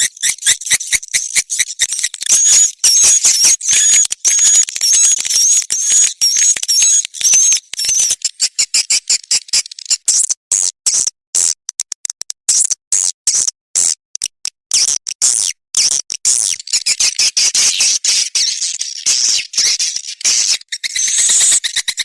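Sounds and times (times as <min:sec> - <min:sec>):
wavering bird twitters: 0:00.0 - 0:10.0
swiftlet chirps and clicks: 0:00.0 - 0:12.8, 0:14.2 - 0:22.0.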